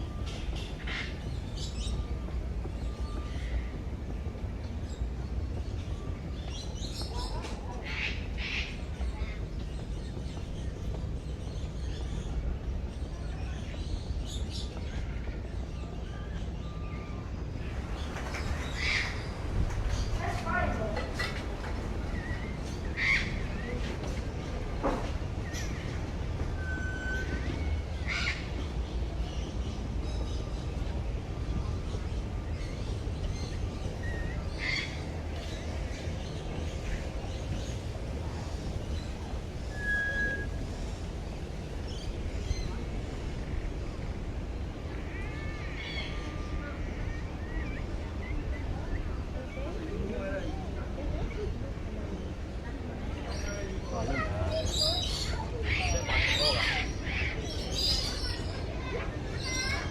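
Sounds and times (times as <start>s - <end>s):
birds chirping: 0.0s - 59.9s
short whistled notes: 39.7s - 40.6s.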